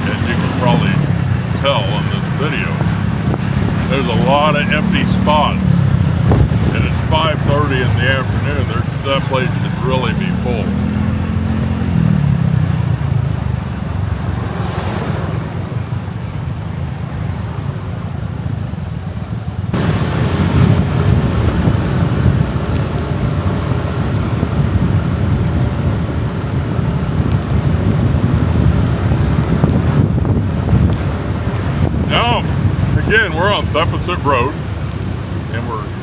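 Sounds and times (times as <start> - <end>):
wind buffeting microphone: 0.0 - 9.0, 19.8 - 33.2
motorbike running: 0.0 - 36.0
road traffic: 0.0 - 36.0.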